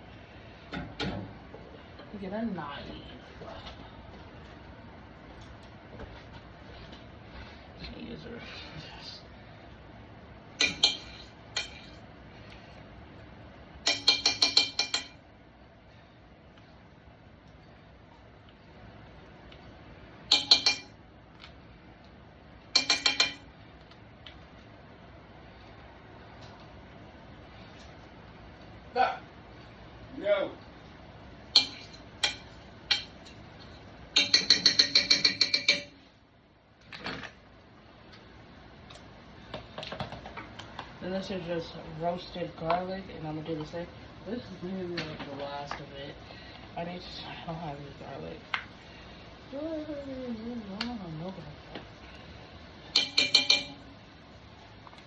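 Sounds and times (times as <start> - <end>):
ringing utensil taps: 13.9 - 15.2, 20.3 - 21.0, 22.8 - 23.5, 31.6 - 33.2, 34.2 - 36.0, 52.9 - 53.8.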